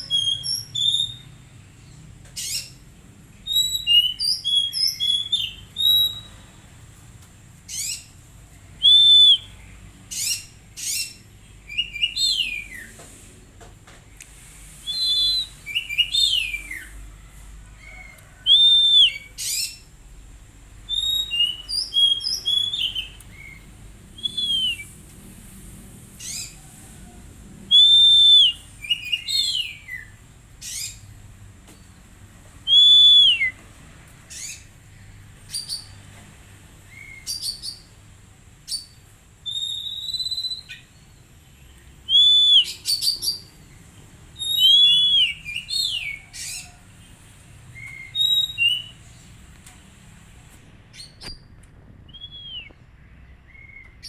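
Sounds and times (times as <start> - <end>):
bird singing whistled notes: 0.0 - 1.4, 3.4 - 6.3, 8.8 - 13.0, 14.8 - 16.9, 18.4 - 19.8, 20.9 - 23.6, 24.2 - 24.9, 27.7 - 31.0, 32.6 - 33.6, 38.7 - 41.2, 42.1 - 43.5, 44.4 - 46.6, 47.8 - 49.0, 52.1 - 52.9.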